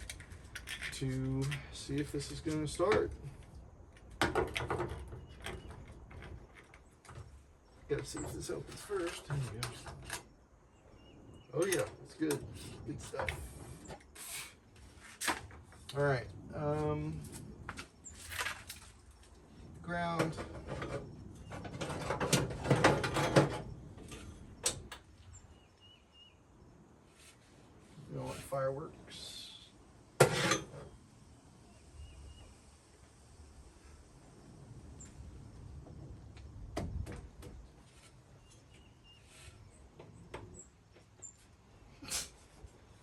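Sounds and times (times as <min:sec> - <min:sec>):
metal clinks and scrapes: 0:00.0 - 0:01.7, 0:30.2 - 0:30.9.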